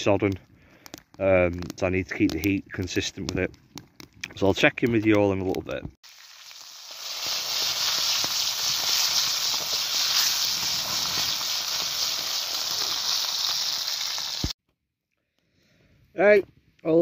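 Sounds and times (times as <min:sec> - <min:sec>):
steak sizzling over campfire: 0:00.0 - 0:04.6, 0:06.0 - 0:14.6.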